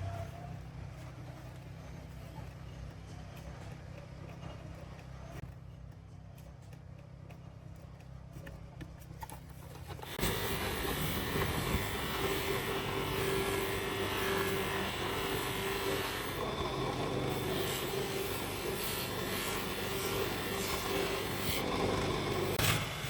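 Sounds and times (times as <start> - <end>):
handheld electric power tool running: 10.0 - 23.0.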